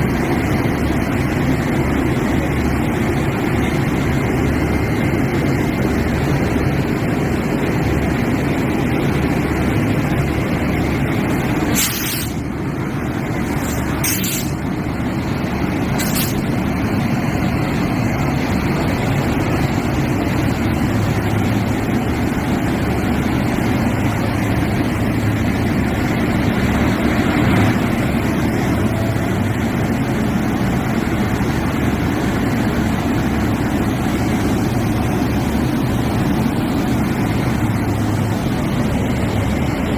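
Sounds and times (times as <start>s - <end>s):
locomotive engine running: 0.0s - 39.9s
short high hisses: 11.7s - 12.4s, 13.6s - 14.6s, 16.0s - 16.4s.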